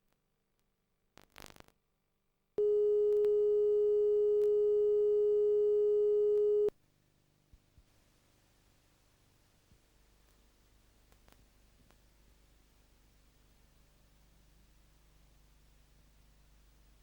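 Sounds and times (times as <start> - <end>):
brief crackle: 1.2 - 1.8
electronic test tone: 2.6 - 6.7
faint tape hiss: 2.6 - 17.0.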